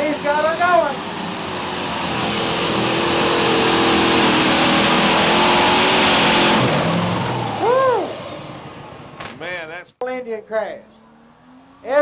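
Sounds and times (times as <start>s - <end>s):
diesel tractor engine under load: 0.0s - 9.8s.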